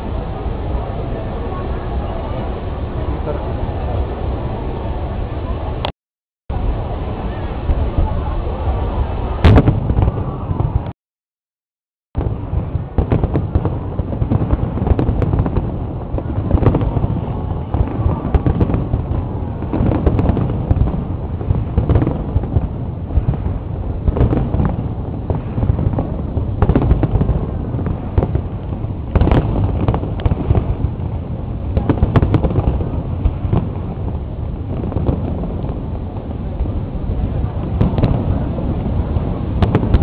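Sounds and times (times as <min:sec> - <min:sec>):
fireworks bangs: 0:06.6 - 0:11.0, 0:12.2 - 0:40.0
steady rumble: 0:12.2 - 0:40.0.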